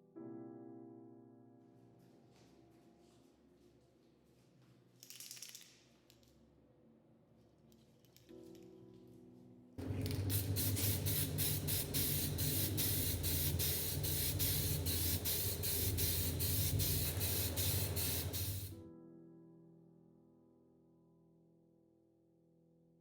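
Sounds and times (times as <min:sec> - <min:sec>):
low hum: 0:09.8 - 0:18.8
paint spray hissing: 0:09.8 - 0:18.8.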